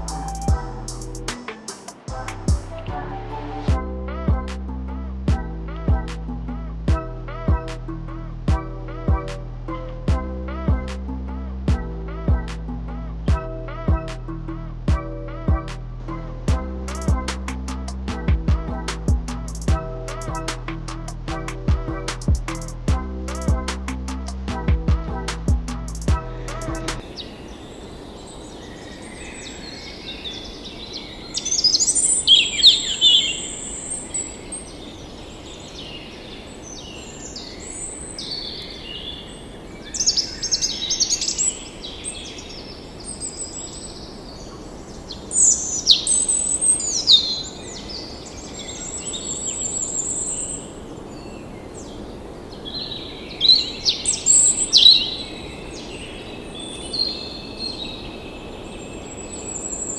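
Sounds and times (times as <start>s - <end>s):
birds chirping and trilling: 16.1s - 59.9s.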